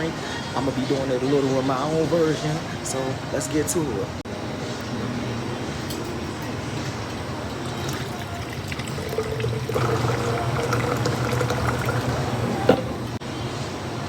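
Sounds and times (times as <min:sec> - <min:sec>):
liquid pouring: 0:07.4 - 0:13.2.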